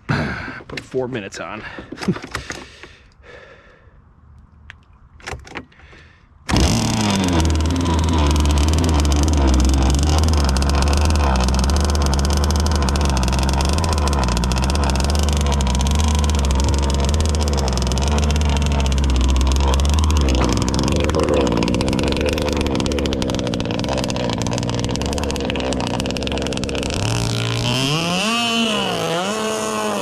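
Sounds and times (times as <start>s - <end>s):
two-stroke engine running loudly: 6.5s - 30.0s.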